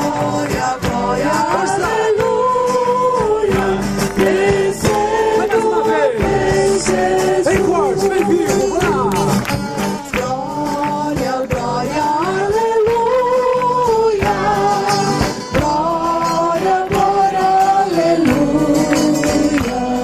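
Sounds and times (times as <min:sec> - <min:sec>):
group singing: 0:00.0 - 0:20.0.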